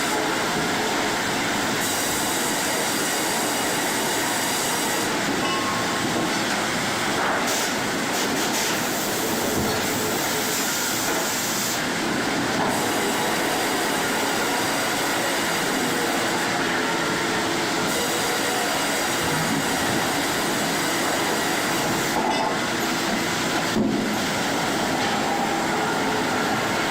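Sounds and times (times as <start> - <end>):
sawmill machinery din: 8.8 - 26.9.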